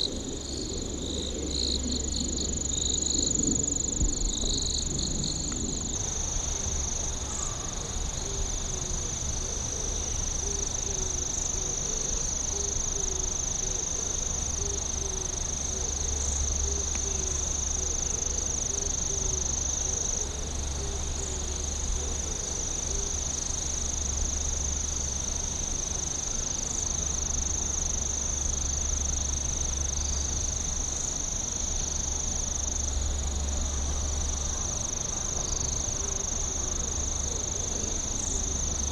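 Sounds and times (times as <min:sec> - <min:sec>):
low rumble: 0:00.0 - 0:06.3
crickets trilling: 0:00.0 - 0:38.9
low pulsing insect call: 0:00.0 - 0:38.9.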